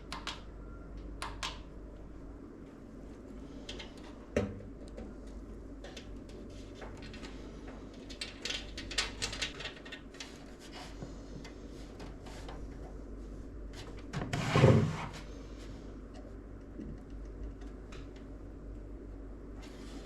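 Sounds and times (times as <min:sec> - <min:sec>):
computer parts clicking and rustling: 0:03.6 - 0:04.2, 0:05.8 - 0:12.8.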